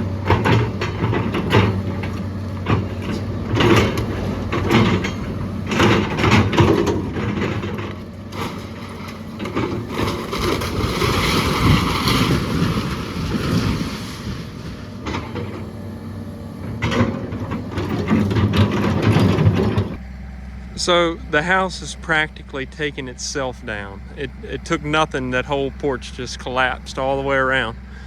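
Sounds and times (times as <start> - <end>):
diesel engine running: 0.0 - 28.0
wood cracking and splintering: 0.4 - 15.4
debris crashing down: 0.4 - 15.5.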